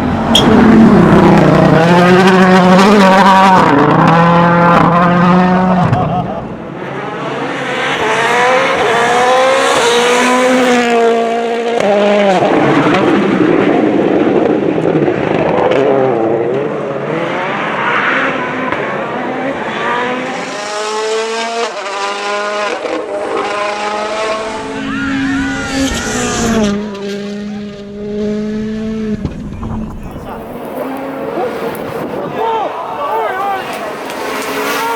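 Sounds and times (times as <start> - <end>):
rally car engine revving hard: 0.0 - 34.9
tyre noise: 29.1 - 34.9.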